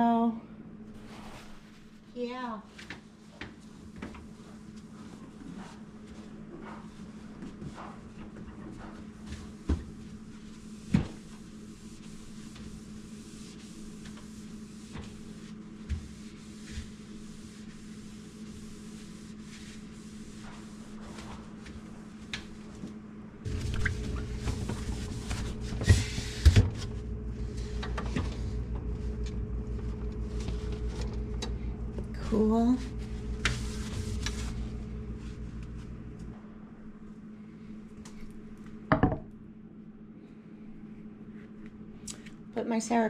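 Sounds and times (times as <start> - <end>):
refrigerator hum: 0.0 - 43.0
louder low hum: 10.0 - 42.5.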